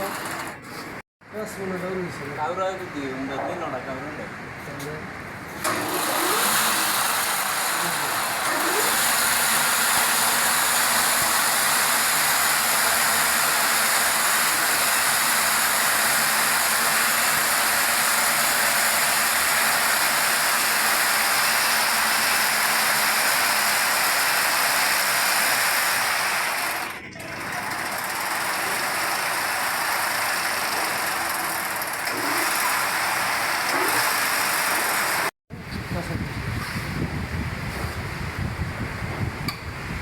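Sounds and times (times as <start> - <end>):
rope-making machinery running: 0.0 - 1.0, 5.6 - 35.3.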